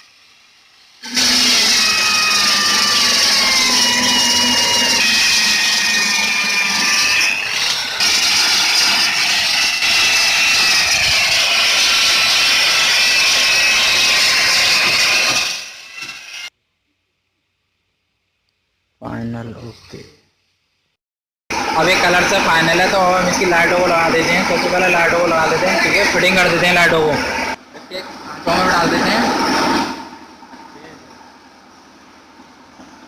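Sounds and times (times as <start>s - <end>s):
power tool whining hiss: 0.0s - 16.5s.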